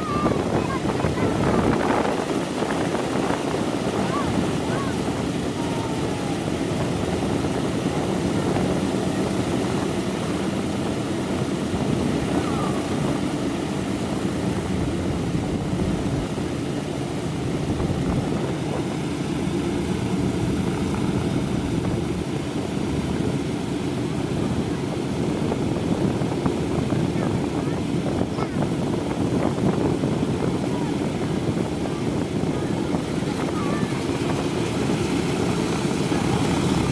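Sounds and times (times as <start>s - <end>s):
propeller aircraft engines running: 0.0s - 36.9s.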